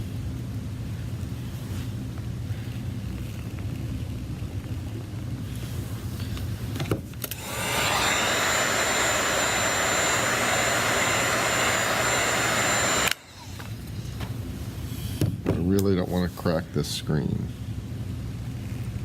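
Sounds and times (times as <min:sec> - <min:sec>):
heat gun blowing air: 0:07.3 - 0:13.8.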